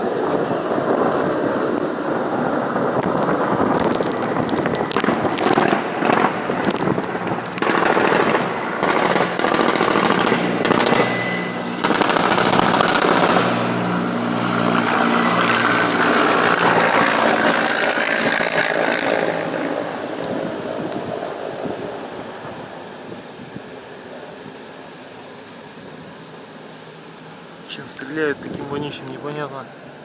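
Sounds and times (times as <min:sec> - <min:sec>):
helicopter rumble: 0:00.0 - 0:30.0
rapid automatic gunfire: 0:07.6 - 0:11.2, 0:11.8 - 0:13.8.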